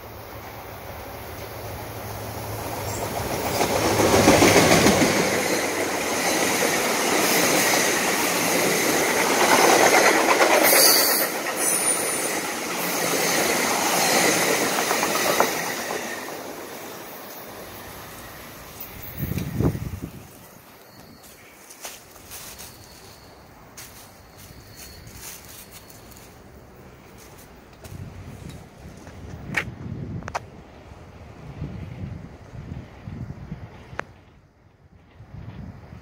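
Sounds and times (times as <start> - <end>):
train wheels clattering over rail joints: 2.8 - 16.6.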